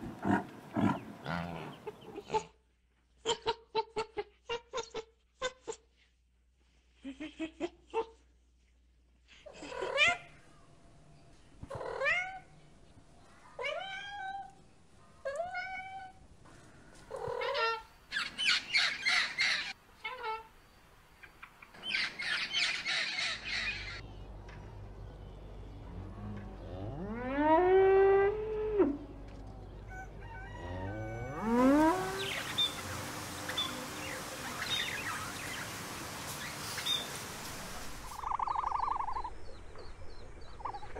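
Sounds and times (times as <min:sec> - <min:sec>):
cow mooing: 0:26.0 - 0:29.8, 0:30.4 - 0:32.2.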